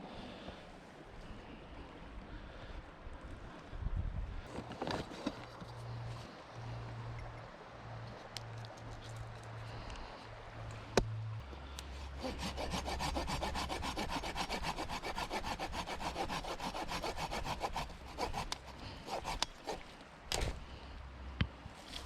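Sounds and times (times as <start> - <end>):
hand saw cutting wood: 12.0 - 20.6.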